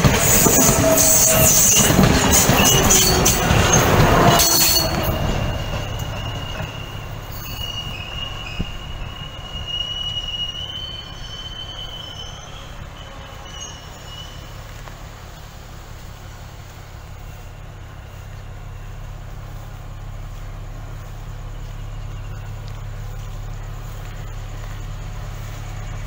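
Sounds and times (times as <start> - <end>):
train wheels clattering over rail joints: 0.0 - 19.3
high steady wheel squeal: 0.0 - 26.0.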